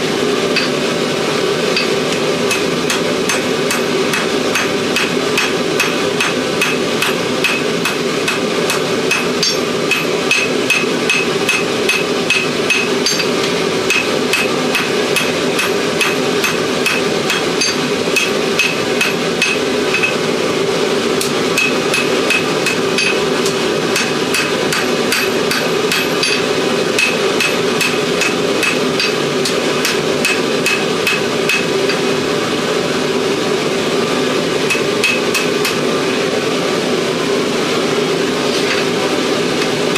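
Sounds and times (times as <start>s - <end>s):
steady background noise: 0.0s - 39.9s
hammer blows on anvil: 1.7s - 20.3s, 21.2s - 32.1s.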